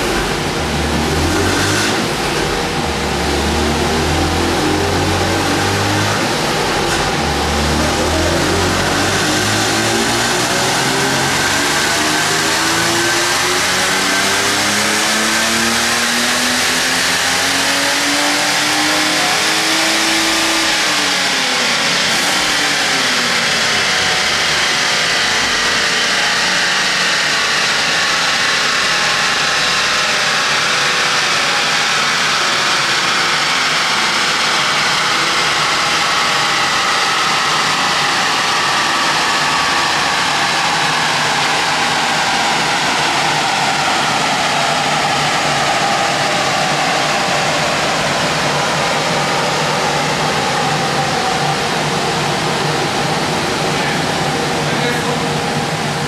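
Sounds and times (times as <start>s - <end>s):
dyno rollers turning: 0.0s - 17.3s
car engine under load: 0.0s - 56.0s.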